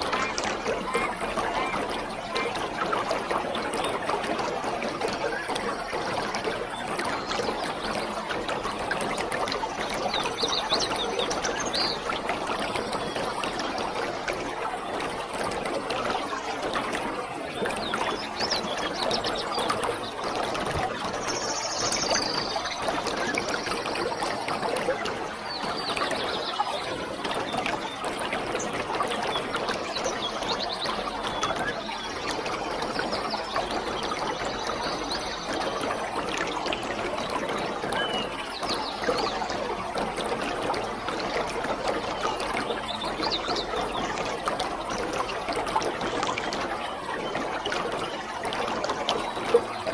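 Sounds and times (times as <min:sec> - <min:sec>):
birds chirping: 0:03.8 - 0:14.4, 0:17.4 - 0:41.3.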